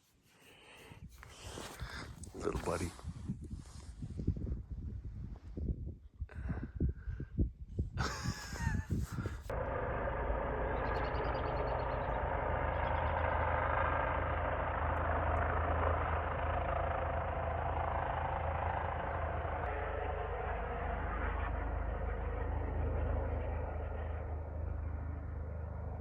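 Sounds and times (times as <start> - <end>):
helicopter engine and rotor drone: 8.0 - 26.0.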